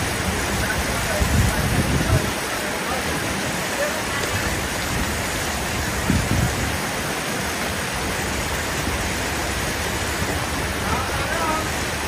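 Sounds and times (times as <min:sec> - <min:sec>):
heavy rain: 0:00.0 - 0:12.0
street traffic: 0:00.0 - 0:12.0.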